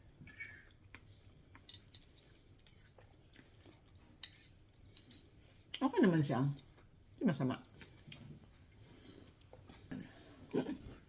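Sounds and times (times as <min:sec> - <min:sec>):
quiet chewing: 0:07.7 - 0:11.0.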